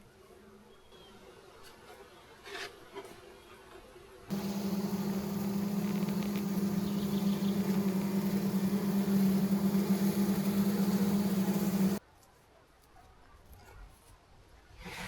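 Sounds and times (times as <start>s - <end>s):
honey bees buzzing: 4.3s - 12.0s.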